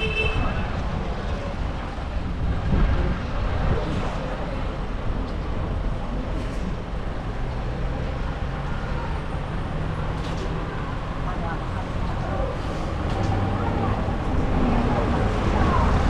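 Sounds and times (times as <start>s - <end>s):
strong wind blowing: 0.0s - 7.4s.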